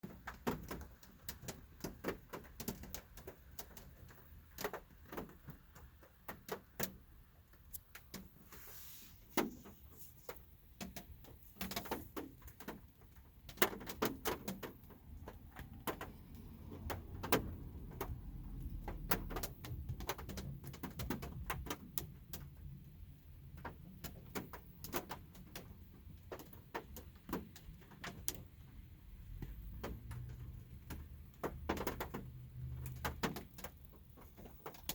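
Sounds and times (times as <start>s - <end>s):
raindrops ticking on car body: 0.0s - 34.9s.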